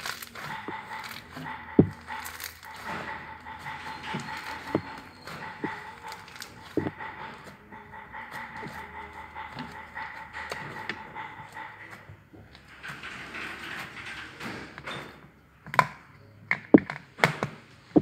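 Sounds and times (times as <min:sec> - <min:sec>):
steady high hum: 0:00.0 - 0:12.9.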